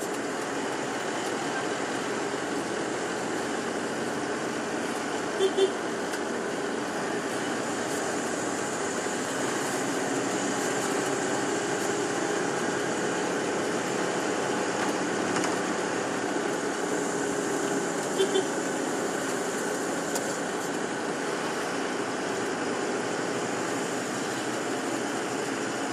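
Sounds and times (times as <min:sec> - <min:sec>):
bus engine and cabin noise: 0:00.0 - 0:25.9.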